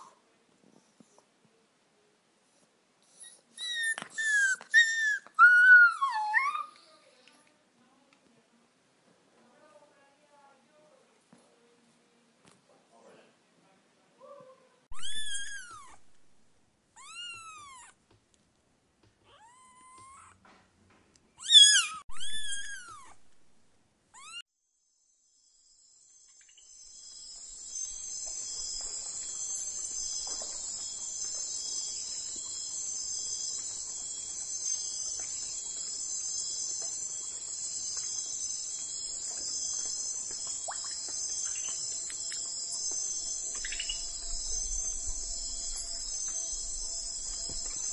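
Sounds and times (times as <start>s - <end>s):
high-pitched animal cries: 14.9s - 16.0s, 17.0s - 18.0s, 19.3s - 20.4s, 21.4s - 23.2s, 24.2s - 24.4s
crickets chirping: 25.0s - 47.9s.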